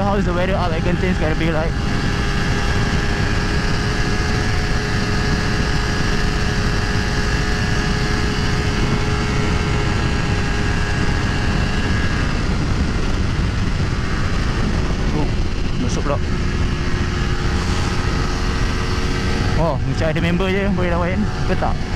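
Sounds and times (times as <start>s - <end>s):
motorcycle engine at high speed: 0.0s - 21.9s
wind rushing on microphone: 0.0s - 21.9s.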